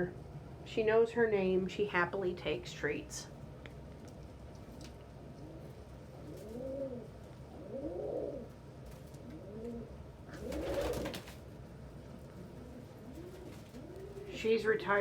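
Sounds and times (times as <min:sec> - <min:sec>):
pigeon cooing: 0:05.3 - 0:11.4, 0:12.0 - 0:14.6.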